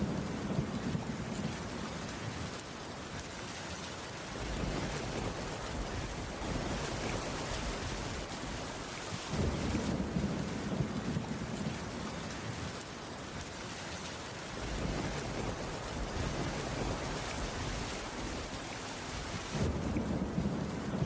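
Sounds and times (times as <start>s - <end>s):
steady rainfall: 0.0s - 21.0s.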